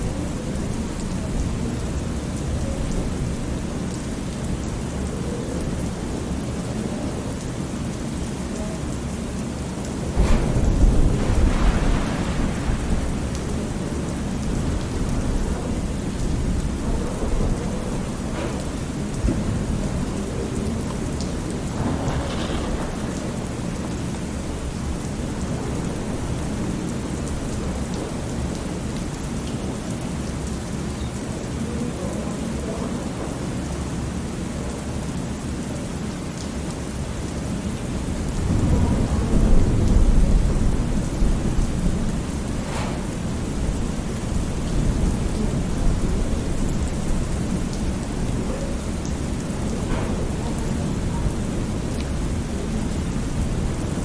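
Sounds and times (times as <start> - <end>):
steady rain falling: 0.0 - 54.0
thunder rumbling: 10.0 - 28.8, 37.8 - 54.0.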